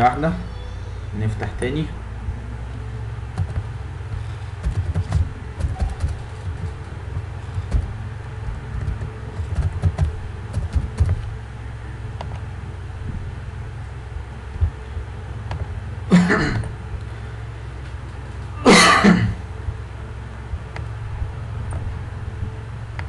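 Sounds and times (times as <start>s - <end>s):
steady low hum: 0.0s - 23.0s
keyboard tapping: 3.4s - 3.7s, 4.6s - 11.3s.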